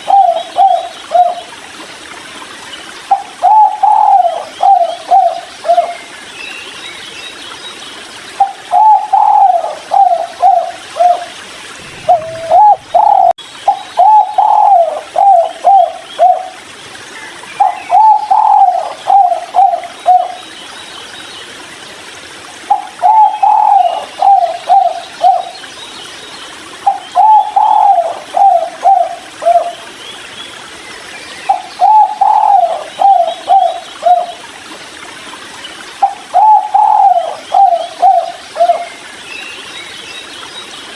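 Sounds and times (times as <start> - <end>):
dove cooing: 0.0 - 1.4, 3.1 - 6.0, 8.4 - 16.6, 17.6 - 20.4, 22.7 - 25.5, 26.8 - 29.8, 31.5 - 34.3, 36.0 - 38.9.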